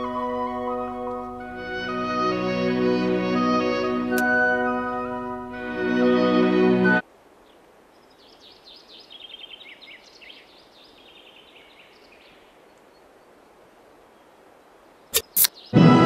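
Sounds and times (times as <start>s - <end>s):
songbirds chirping and trilling: 6.9s - 15.8s.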